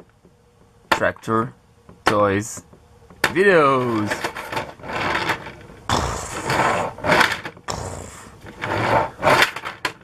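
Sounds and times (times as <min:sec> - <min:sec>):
plastic toys clattering and scraping: 0:03.2 - 0:10.0.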